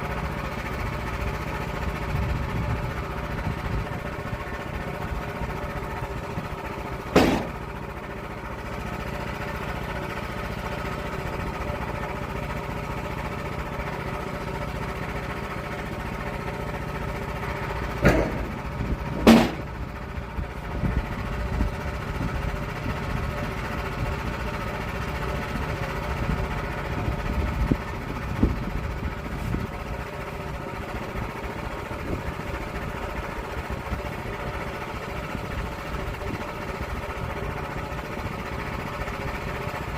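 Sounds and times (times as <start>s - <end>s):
engine running steadily: 0.0s - 39.9s
sharp knocks: 7.1s - 7.6s, 18.0s - 18.6s, 19.2s - 19.8s.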